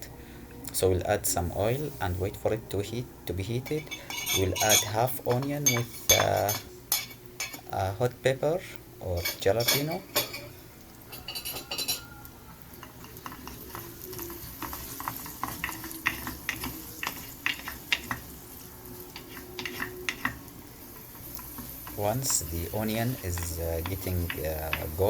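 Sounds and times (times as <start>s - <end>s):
onion sizzling in oil: 1.3s - 25.0s
spoon scraping bowl: 12.8s - 25.0s.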